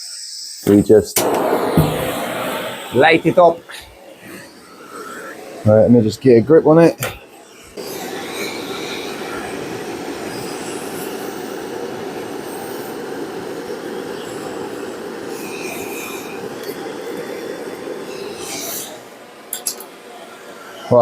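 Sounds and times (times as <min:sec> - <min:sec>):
heat gun blowing: 0:00.6 - 0:19.3.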